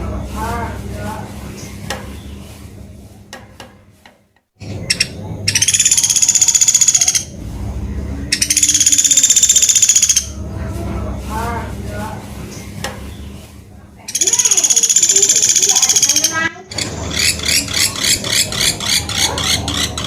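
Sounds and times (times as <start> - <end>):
woodpecker high rapid trills: 4.6 - 7.4, 8.3 - 10.4, 14.1 - 20.0.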